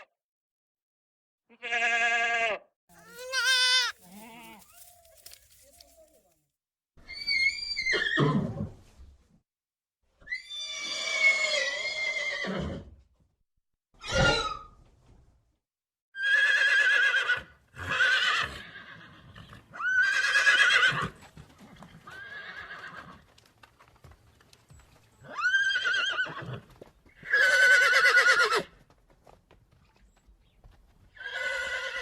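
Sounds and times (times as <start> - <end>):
horse neighing: 3.0 - 4.8.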